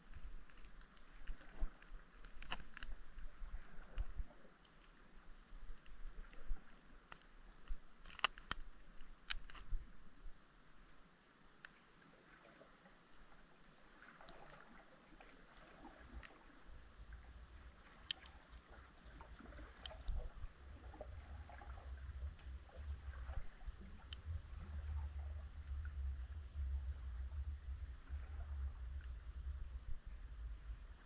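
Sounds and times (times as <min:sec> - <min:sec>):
faint underwater clicks: 0:00.0 - 0:31.0
low underwater rumble: 0:12.1 - 0:31.0.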